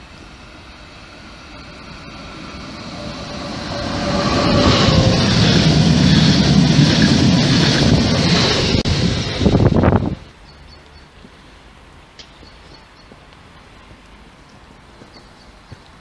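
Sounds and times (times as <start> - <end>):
train wheels rumbling on rail: 0.0 - 10.7.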